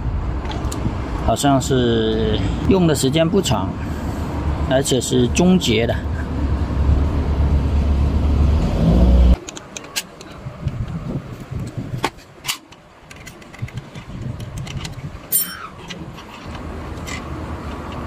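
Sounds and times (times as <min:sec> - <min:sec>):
metallic clicks and knocks: 0:12.0 - 0:18.0.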